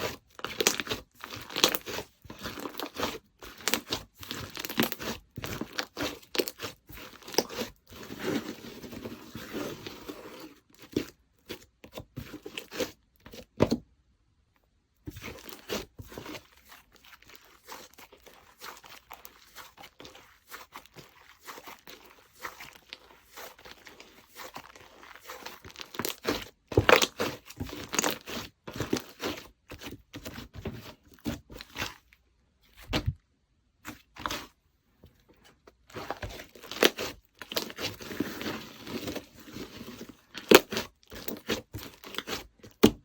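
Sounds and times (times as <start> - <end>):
slime squishing and popping: 0.4 - 8.8, 17.0 - 30.5, 36.0 - 43.0.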